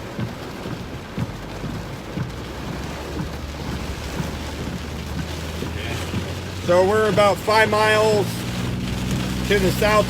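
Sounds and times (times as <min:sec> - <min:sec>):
heavy rain on car roof: 0:00.0 - 0:10.0.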